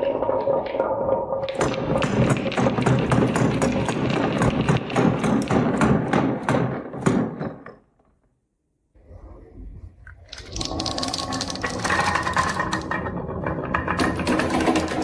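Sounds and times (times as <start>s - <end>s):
marbles rolling down wooden run: 10.3s - 15.0s.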